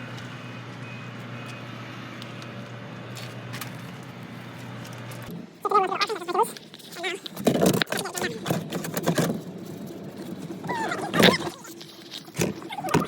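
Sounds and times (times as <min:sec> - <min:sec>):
person speaking: 0:05.6 - 0:08.6.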